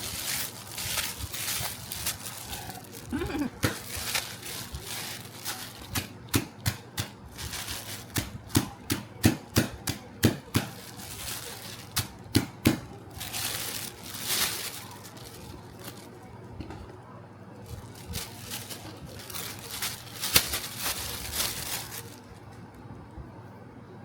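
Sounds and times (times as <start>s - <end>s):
soft rustling scrape: 0.0s - 3.1s, 3.8s - 6.1s, 17.6s - 22.6s.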